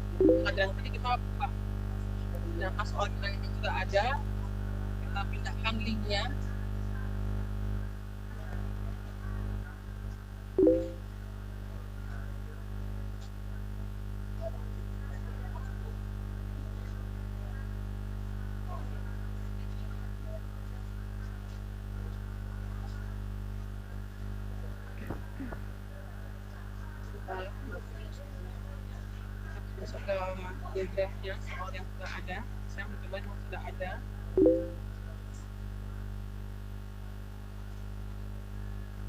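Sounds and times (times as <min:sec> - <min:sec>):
electrical mains hum: 0:00.0 - 0:39.0
short pitched blip: 0:10.6 - 0:11.0, 0:34.4 - 0:34.8.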